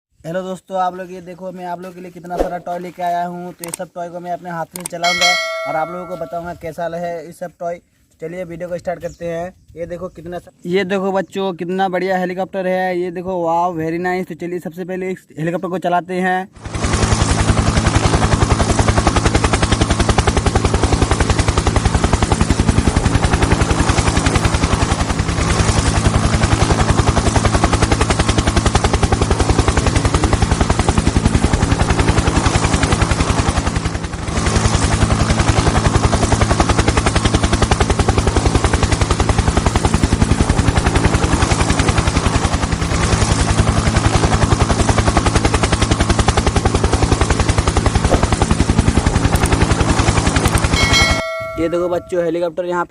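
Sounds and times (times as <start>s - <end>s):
low hum: 37.5s - 52.2s
toy helicopter chopping clatter: 48.0s - 49.6s, 50.4s - 52.1s.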